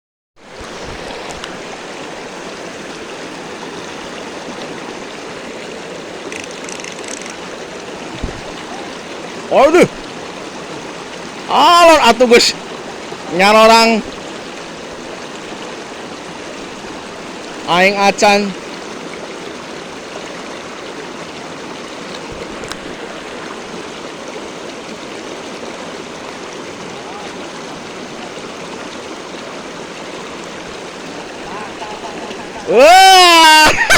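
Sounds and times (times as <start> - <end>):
stream water rushing: 0.4 - 33.9
sharp click: 6.3 - 7.4.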